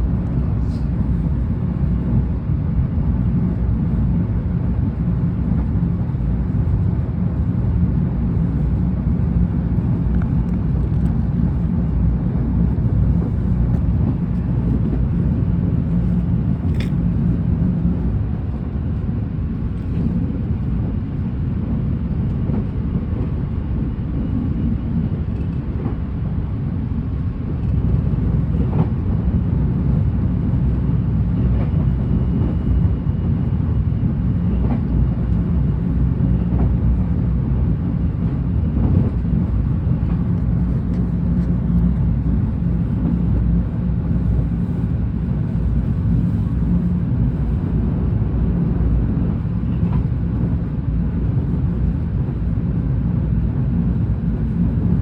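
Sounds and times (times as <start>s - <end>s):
steady hum: 0.0s - 55.0s
train car rumble: 0.0s - 55.0s.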